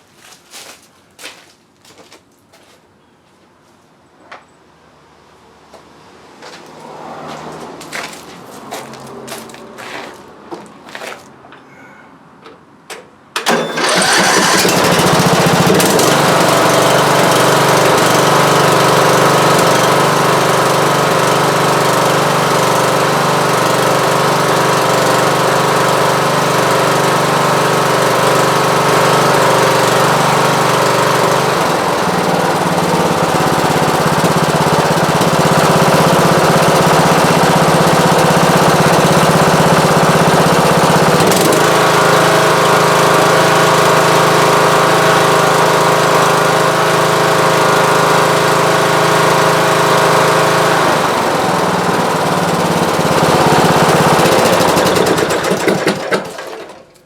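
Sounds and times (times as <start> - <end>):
mower engine cranking and running: 12.9 - 57.0.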